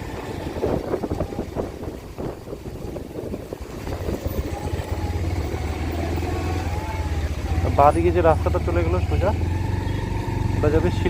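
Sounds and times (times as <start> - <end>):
wind rumble on microphone: 0.0 - 8.1
motorcycle engine running: 0.0 - 11.0.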